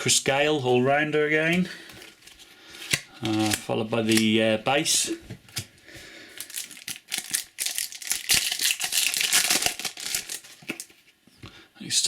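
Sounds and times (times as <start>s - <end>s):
cards and packet crinkling: 1.8s - 4.4s, 6.3s - 11.0s.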